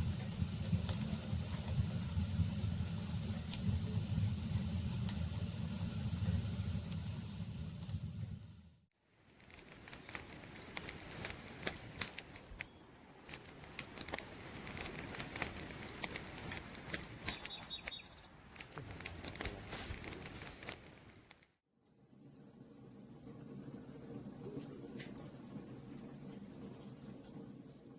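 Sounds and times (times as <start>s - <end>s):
fire hiss: 0.0s - 8.9s
campfire crackling and popping: 0.0s - 21.6s.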